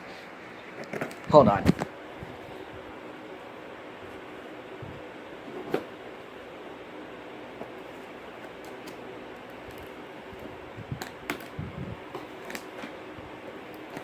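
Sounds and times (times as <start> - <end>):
packing tape being cut: 12.2 - 13.0.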